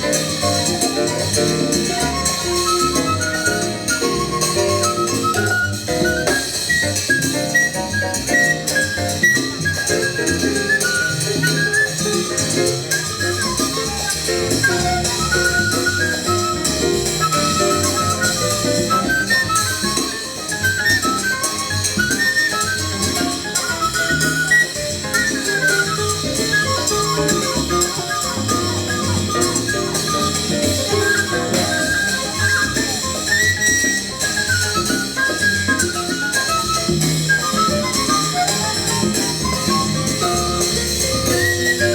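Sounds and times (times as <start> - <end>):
latin jazz ensemble playing: 0.0 - 41.9.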